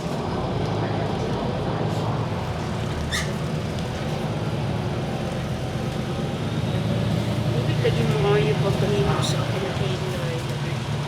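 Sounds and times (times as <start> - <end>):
bus engine hum: 0.0 - 11.0
road noise: 0.0 - 11.0.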